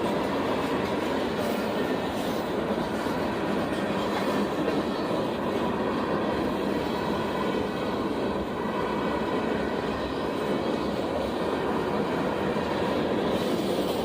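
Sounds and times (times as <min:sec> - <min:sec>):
train wheels on rails: 0:00.0 - 0:14.0.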